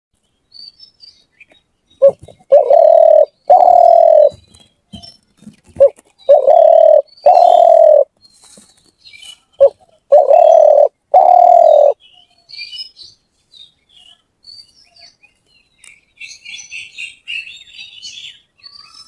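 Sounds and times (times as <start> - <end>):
small birds chirping: 0.2 - 19.0
dove cooing: 2.0 - 4.4, 5.8 - 8.1, 9.6 - 12.0.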